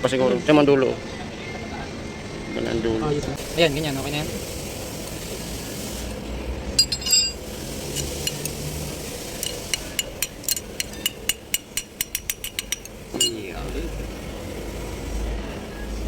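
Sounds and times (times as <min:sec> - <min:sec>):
metal tools clinking: 0:06.8 - 0:08.7, 0:09.3 - 0:13.6
light metallic ticks: 0:09.4 - 0:13.4.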